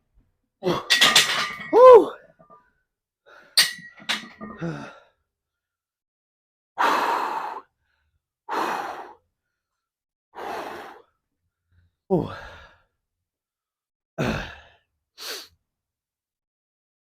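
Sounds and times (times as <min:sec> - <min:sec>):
man breathing hard: 0:06.8 - 0:09.2, 0:10.4 - 0:11.1, 0:12.2 - 0:12.9.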